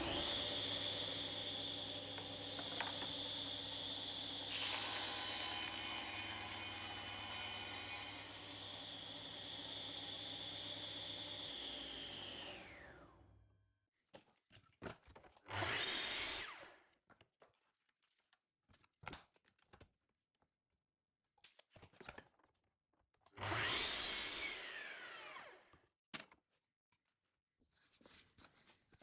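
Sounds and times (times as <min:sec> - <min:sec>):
power tool winding down: 0:00.0 - 0:13.1, 0:23.4 - 0:25.6.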